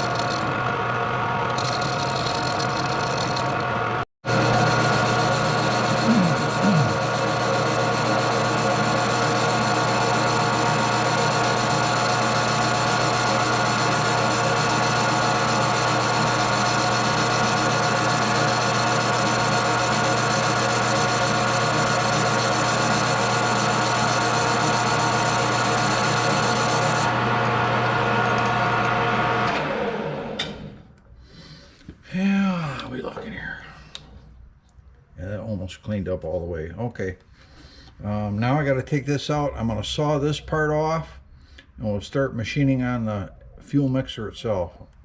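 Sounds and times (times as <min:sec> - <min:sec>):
metal lathe running: 0:00.0 - 0:29.8.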